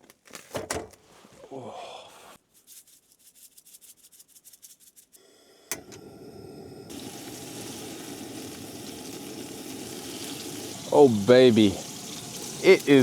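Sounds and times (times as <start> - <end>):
steak sizzling in a pan: 6.3 - 13.0.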